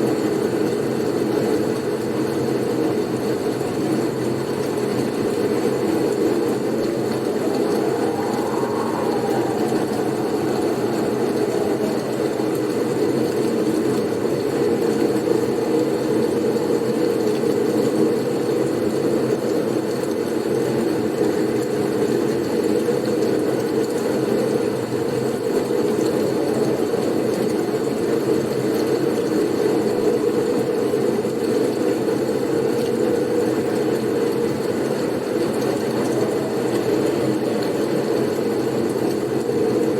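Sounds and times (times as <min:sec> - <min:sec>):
blizzard wind rushing: 0:05.0 - 0:18.5
faint wind whistle: 0:05.2 - 0:19.2, 0:34.9 - 0:39.9.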